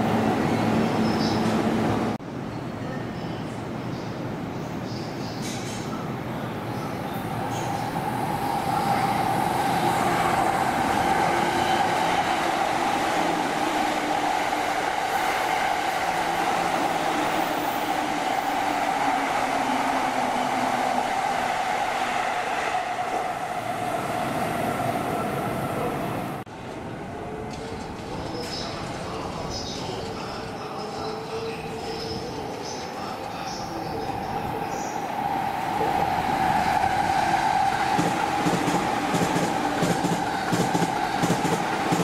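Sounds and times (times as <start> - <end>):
train rail noise: 0.0 - 42.0
electric train high tone: 8.7 - 25.9.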